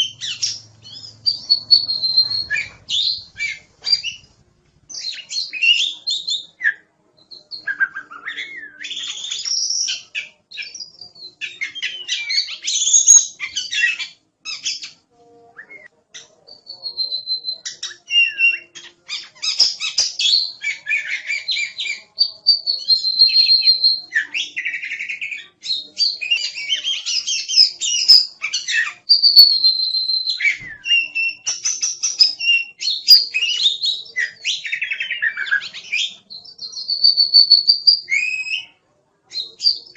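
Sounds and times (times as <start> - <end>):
bird singing whistled song: 0.0 - 4.3, 4.9 - 15.0, 15.6 - 38.7.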